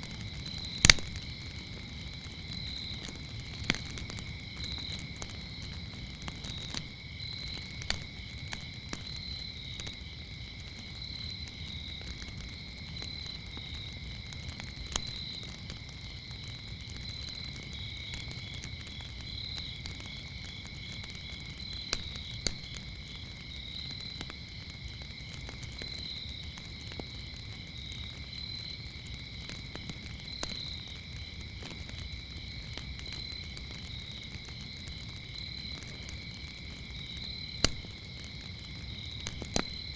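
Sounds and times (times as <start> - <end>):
crickets chirping: 0.0 - 39.9
wood fire crackling and popping: 0.0 - 39.9.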